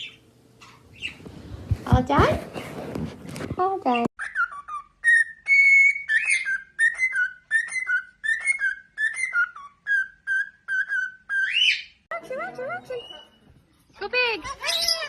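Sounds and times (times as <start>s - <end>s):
parrot whistling a tune: 4.2s - 12.0s.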